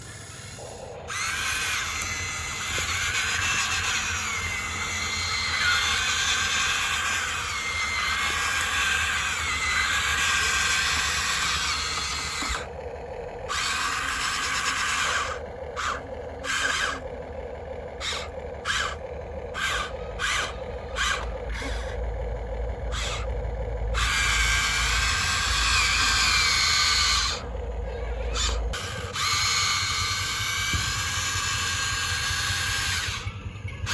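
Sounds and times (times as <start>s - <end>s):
small electric motors whining: 0.0s - 33.9s.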